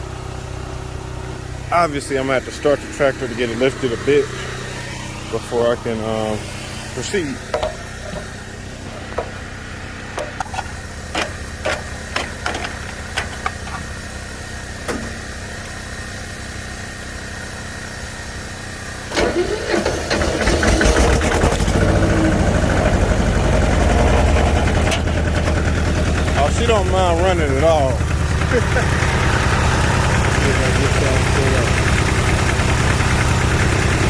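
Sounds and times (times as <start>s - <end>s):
tractor engine starting and running: 0.0s - 34.0s
clicks and knocks: 7.5s - 9.5s, 10.2s - 13.9s.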